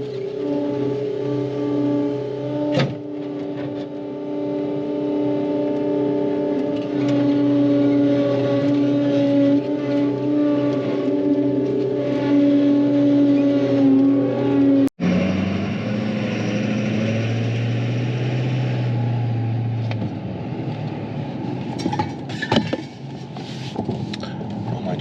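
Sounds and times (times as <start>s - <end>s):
lower-pitched engine running: 0.0s - 25.0s
vehicle engine running: 0.0s - 25.0s
rattles and knocks: 21.7s - 24.2s.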